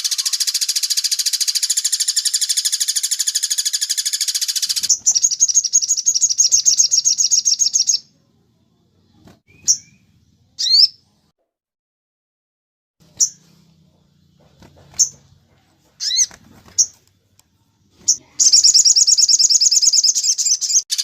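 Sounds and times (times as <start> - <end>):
songbird trilling: 0.0 - 8.1, 9.5 - 11.0, 16.0 - 16.9, 18.1 - 21.0
bird chirps: 0.0 - 8.2, 9.1 - 11.1, 13.0 - 17.0, 18.0 - 21.0.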